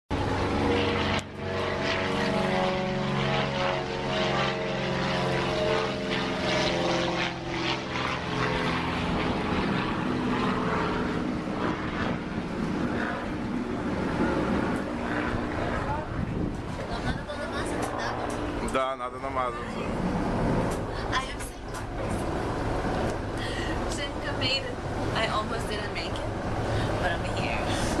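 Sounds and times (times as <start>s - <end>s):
engine droning: 0.1s - 28.0s.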